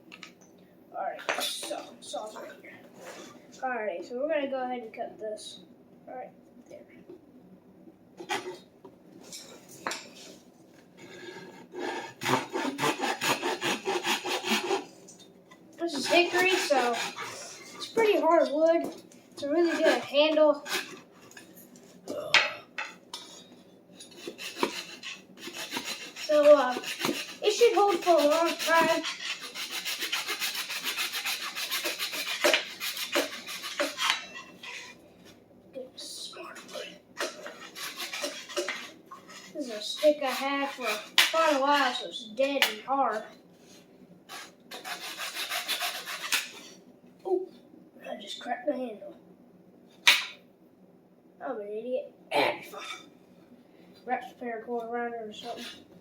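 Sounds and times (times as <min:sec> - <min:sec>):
hand saw cutting wood: 0:11.3 - 0:14.9, 0:15.9 - 0:18.3, 0:19.4 - 0:21.1, 0:24.0 - 0:34.9, 0:36.7 - 0:42.0, 0:44.3 - 0:46.7, 0:55.4 - 0:55.8.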